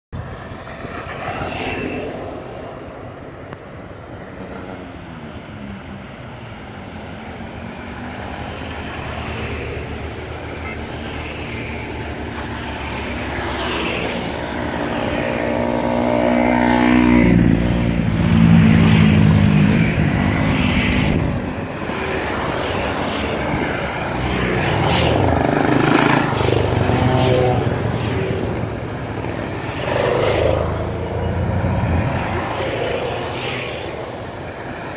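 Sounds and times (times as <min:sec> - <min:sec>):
motorcycle engines running: 0:07.8 - 0:34.7.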